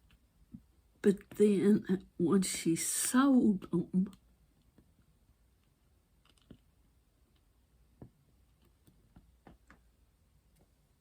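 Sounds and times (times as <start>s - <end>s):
faint clicks and taps: 4.1s - 10.8s.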